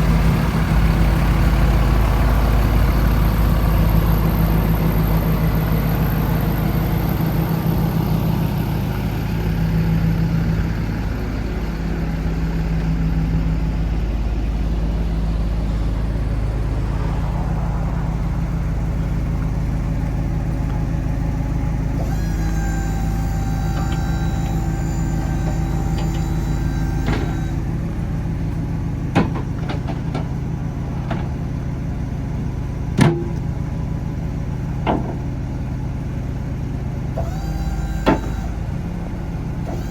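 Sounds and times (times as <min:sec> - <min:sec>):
diesel engine idling: 0:00.0 - 0:39.9
steady high tone: 0:15.6 - 0:28.1.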